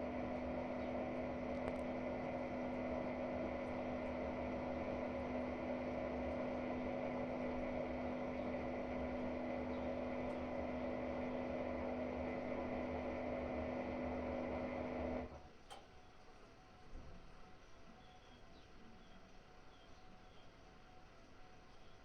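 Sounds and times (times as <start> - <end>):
washing machine drum spinning: 0.0 - 15.3.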